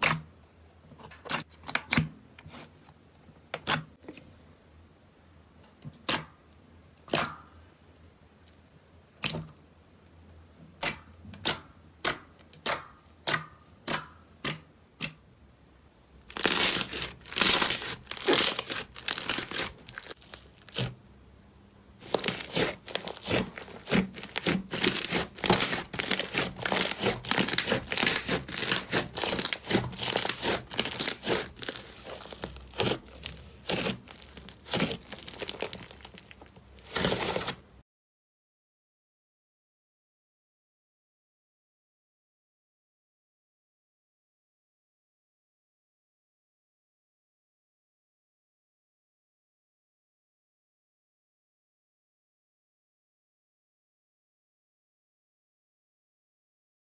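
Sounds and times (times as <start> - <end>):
slime popping and crackling: 16.3 - 20.9, 22.0 - 37.6.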